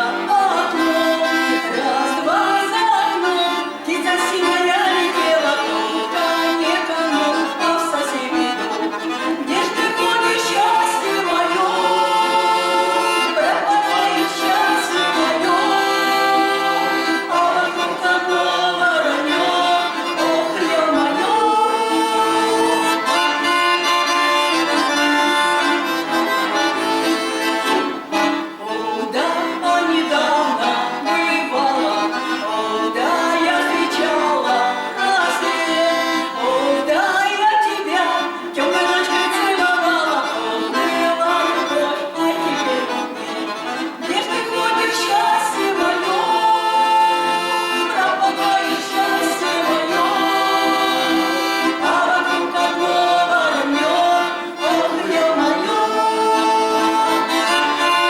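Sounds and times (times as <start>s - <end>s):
accordion folk melody: 0.0s - 58.0s.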